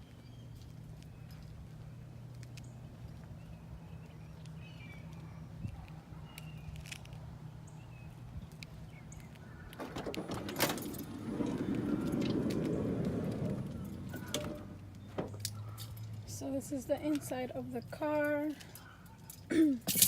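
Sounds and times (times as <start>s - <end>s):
rustling and clicks: 8.5s - 16.2s.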